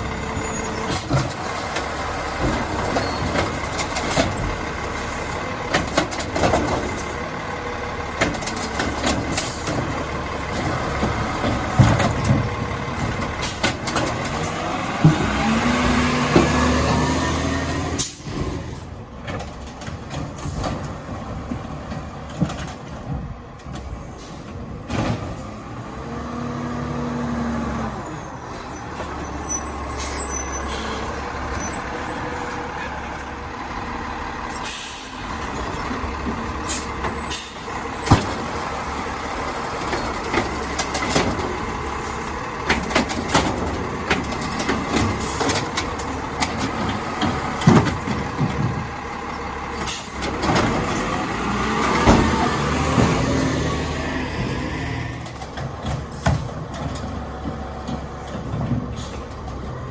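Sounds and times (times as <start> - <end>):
garbage truck engine running: 0.0 - 59.9
air brake hisses: 34.5 - 35.3.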